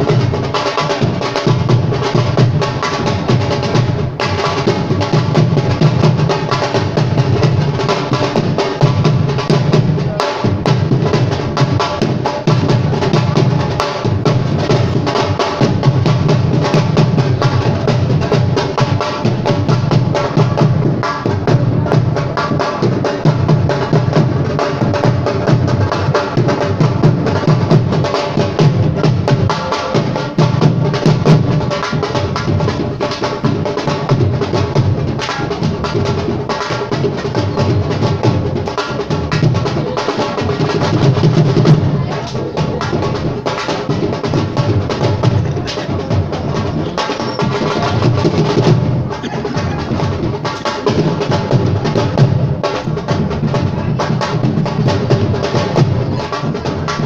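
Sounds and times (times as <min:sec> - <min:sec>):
drums in fast dense rhythm: 0:00.0 - 0:57.0.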